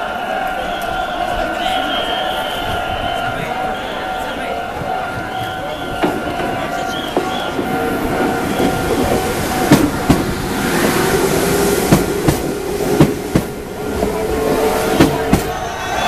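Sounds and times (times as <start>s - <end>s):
electric train rumbling: 0.0s - 16.0s
train wheels clacking over rail joint: 4.8s - 16.0s.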